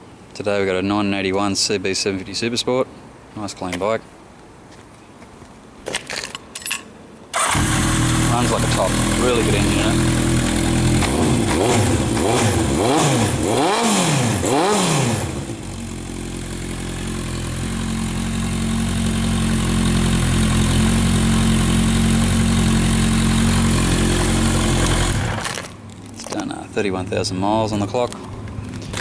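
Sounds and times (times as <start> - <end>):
motorcycle engine revving and idling: 7.4 - 25.7.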